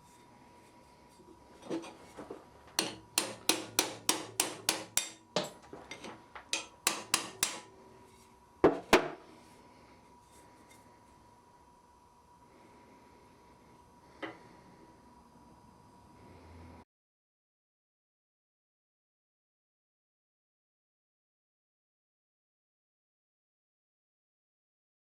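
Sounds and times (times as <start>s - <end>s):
hammer striking steel on anvil: 2.8s - 7.8s.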